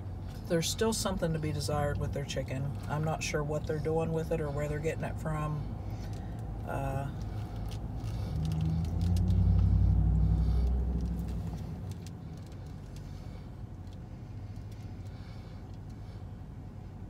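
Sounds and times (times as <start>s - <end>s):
vehicle engine hum: 0.0s - 17.0s
foil wrapper crinkling: 7.4s - 9.6s.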